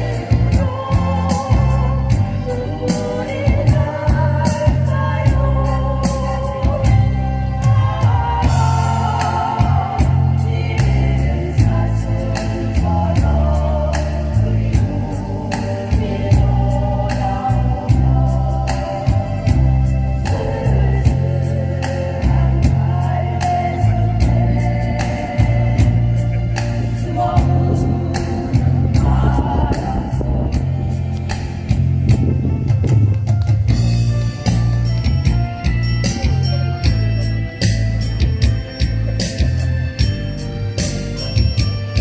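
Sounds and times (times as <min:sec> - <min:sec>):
vocal ensemble singing: 0:00.0 - 0:32.1
heavy bass line: 0:00.0 - 0:42.0.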